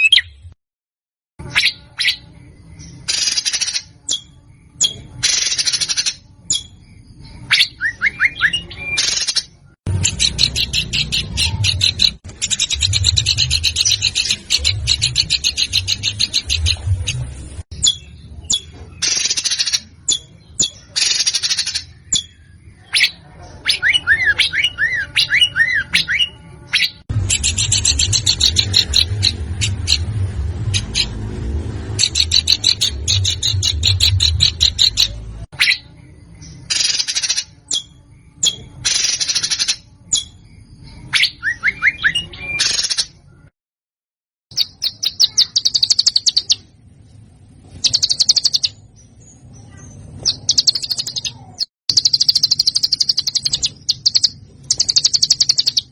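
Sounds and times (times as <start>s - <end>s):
low hum: 9.9s - 18.4s, 26.3s - 36.5s.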